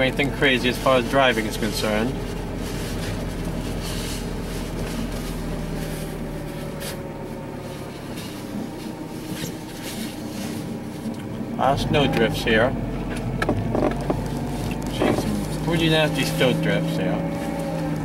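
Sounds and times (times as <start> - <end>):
car engine hum: 0.0 - 18.0
tyre road noise: 0.0 - 18.0.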